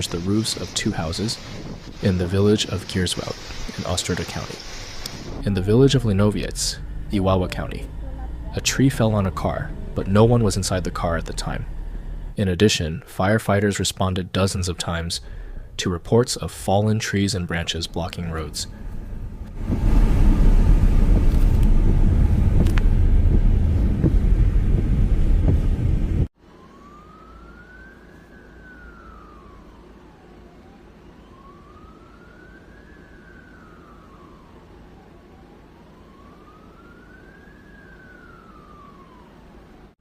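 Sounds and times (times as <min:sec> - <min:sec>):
wind buffeting microphone: 0:00.0 - 0:03.7, 0:18.4 - 0:26.3
emergency siren wailing: 0:00.0 - 0:04.5, 0:05.2 - 0:12.4, 0:17.1 - 0:40.0.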